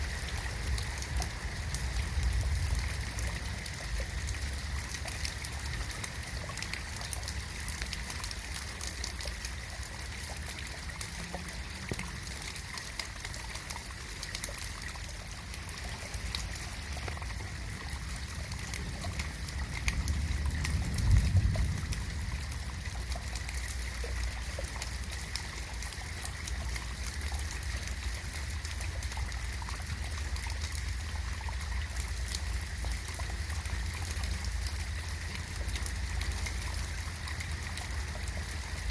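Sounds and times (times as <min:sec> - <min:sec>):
steady rain falling: 0:00.0 - 0:38.9
low rumble: 0:17.9 - 0:24.0.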